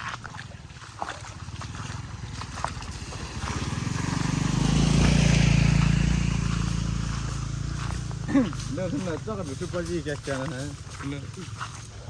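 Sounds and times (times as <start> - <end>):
vehicle engine running: 0.2 - 12.0.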